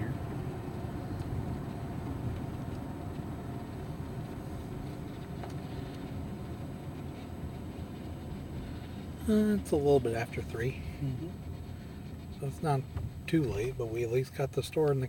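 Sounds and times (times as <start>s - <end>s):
car interior engine and road rumble: 0.0s - 15.0s.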